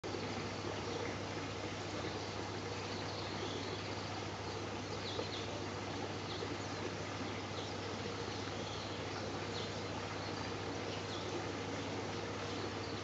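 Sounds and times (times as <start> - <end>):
constant low hum: 0.0 - 13.0
birds chirping: 2.0 - 13.0.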